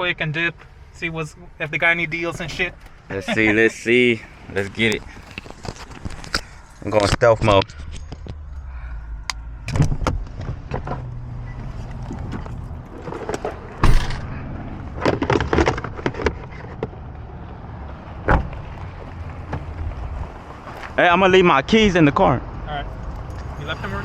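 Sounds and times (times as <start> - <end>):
car rumbling: 0.0 - 24.0
rustling: 1.6 - 7.0.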